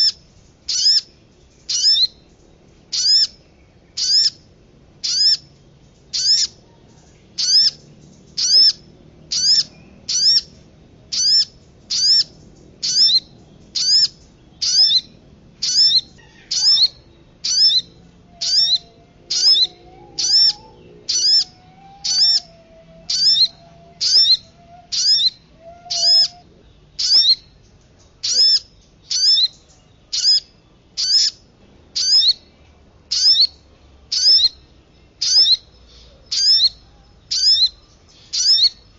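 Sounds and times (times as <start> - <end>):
high upward-sweeping bird call: 1.7 - 2.3, 2.9 - 3.4, 4.0 - 4.4, 5.0 - 5.5, 6.1 - 27.6, 28.2 - 31.4, 32.0 - 32.5, 33.1 - 34.6, 35.2 - 38.9
faint wavering low whistle: 17.6 - 26.5.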